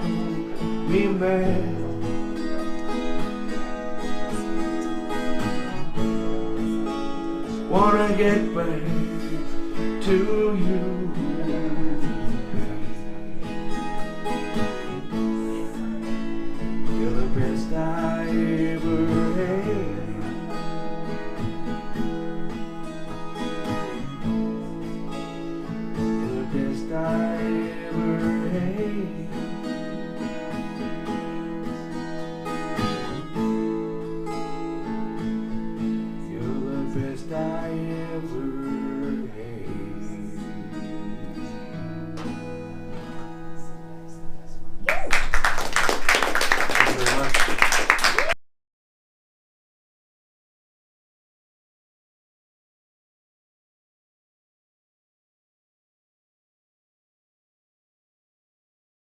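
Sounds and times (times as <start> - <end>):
strummed and plucked guitar: 0.0 - 44.9.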